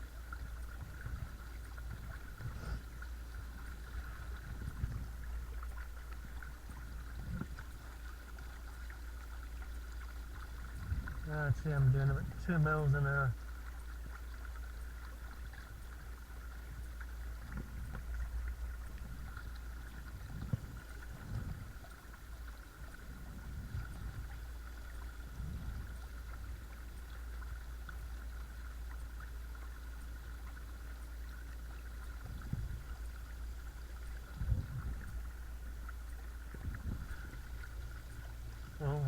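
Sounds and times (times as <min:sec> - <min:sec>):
soft low thumps: 0:00.0 - 0:07.8, 0:16.8 - 0:22.1, 0:32.1 - 0:39.0.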